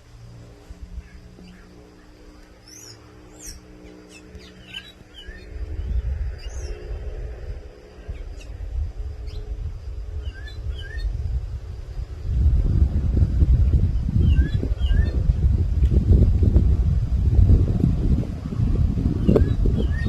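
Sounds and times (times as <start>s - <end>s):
faint low hum: 0.0s - 20.0s
wind rumble on microphone: 0.0s - 20.0s
thrush calling with chirps and whistles: 1.0s - 7.0s, 8.0s - 8.6s, 9.2s - 11.2s, 14.0s - 15.3s, 19.2s - 20.0s.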